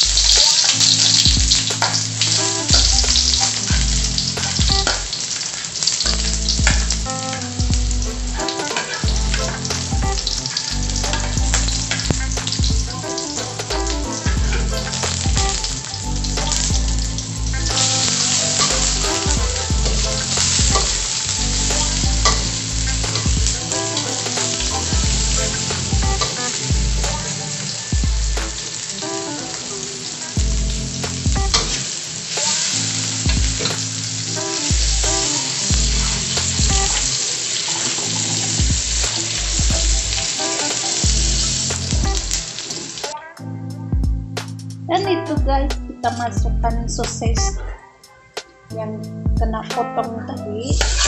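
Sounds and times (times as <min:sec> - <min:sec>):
shallots sizzling in hot oil: 0:00.0 - 0:43.2, 0:50.8 - 0:51.0
metal spatula scraping wok: 0:08.4 - 0:09.9, 0:16.5 - 0:19.2, 0:50.8 - 0:51.0.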